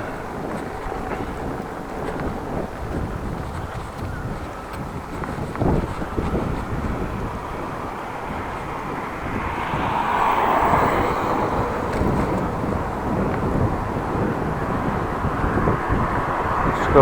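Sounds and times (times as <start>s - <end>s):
bicycle tyre and road noise: 0.0s - 17.0s
vehicle passing: 0.0s - 17.0s
wind buffeting microphone: 0.0s - 17.0s.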